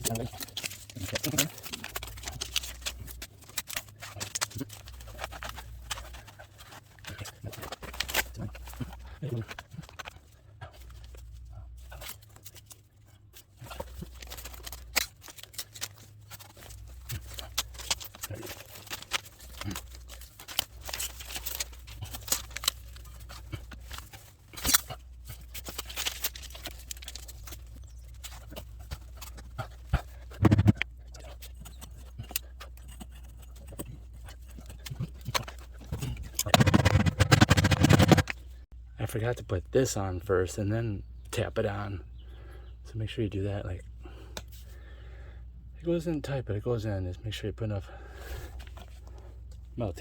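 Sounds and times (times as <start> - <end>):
hands working tape: 0.0 - 10.2, 13.4 - 33.8, 34.4 - 38.4.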